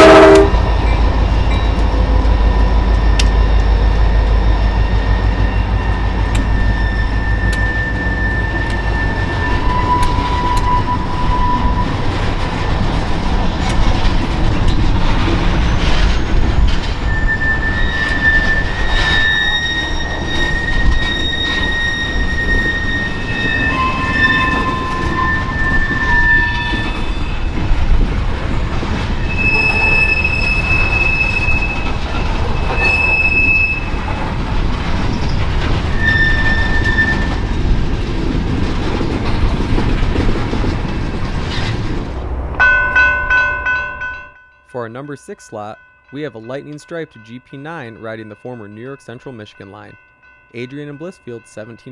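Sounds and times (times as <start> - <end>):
freight train rumbling past: 0.0 - 44.5
train wheels squealing: 0.3 - 12.7, 14.6 - 28.0, 29.2 - 34.3, 34.9 - 37.8.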